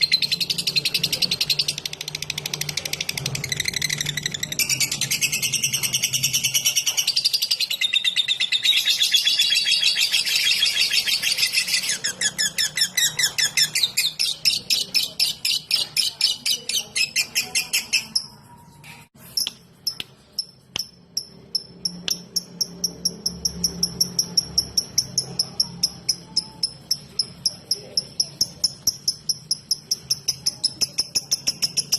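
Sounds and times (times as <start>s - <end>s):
lovebird rapid chatter: 0.0s - 31.9s
bird fast ticking notes: 19.4s - 31.9s.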